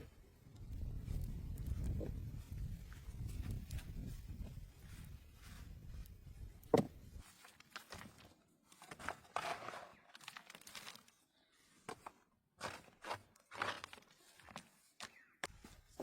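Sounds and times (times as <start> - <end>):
low wind rumble: 0.0 - 7.2
crunching and rustling: 7.2 - 11.2.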